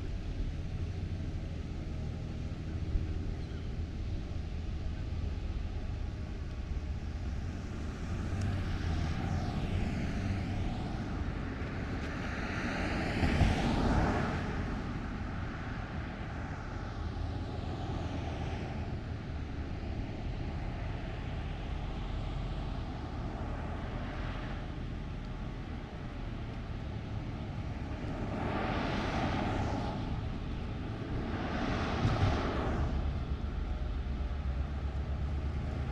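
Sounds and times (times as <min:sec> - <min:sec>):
outdoor street background: 0:00.0 - 0:35.9
vehicle passing by: 0:07.2 - 0:35.9.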